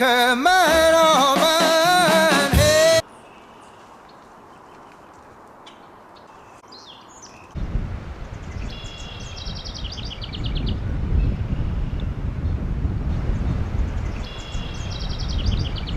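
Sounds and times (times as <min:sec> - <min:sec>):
songbird chirps and trill: 0:03.0 - 0:07.6, 0:08.3 - 0:12.1, 0:13.9 - 0:15.9.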